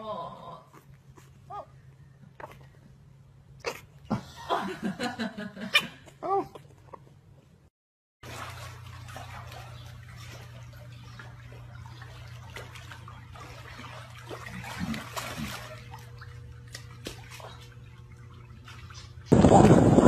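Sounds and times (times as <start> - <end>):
steady low hum: 0.0 - 20.0
water trickling and splashing: 8.2 - 20.0.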